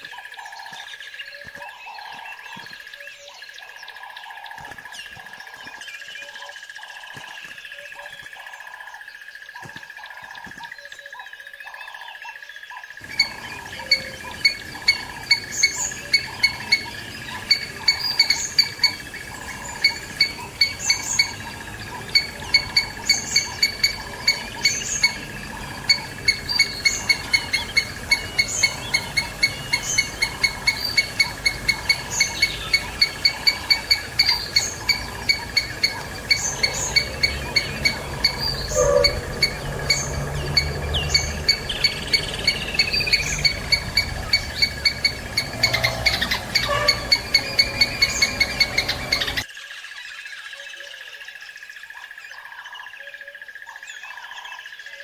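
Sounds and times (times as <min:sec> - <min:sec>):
birds chirping: 0:00.0 - 0:55.0
rapid sharp chirps: 0:13.0 - 0:49.5
rushing background noise: 0:13.0 - 0:49.5.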